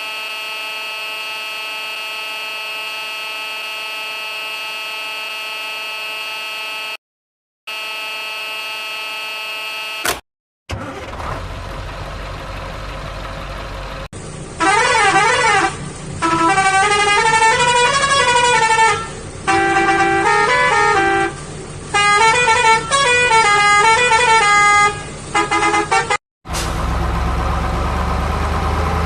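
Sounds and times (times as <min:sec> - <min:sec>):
musical vehicle horn playing: 0:00.0 - 0:07.0, 0:07.7 - 0:10.1, 0:14.6 - 0:26.2.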